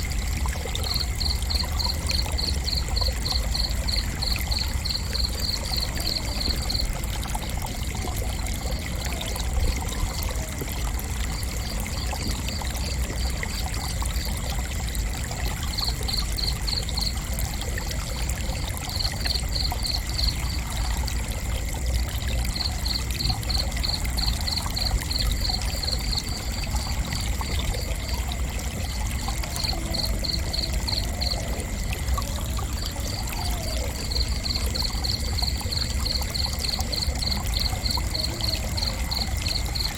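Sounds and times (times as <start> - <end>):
crickets chirping: 0.0 - 39.9
high insect trill: 28.9 - 39.9.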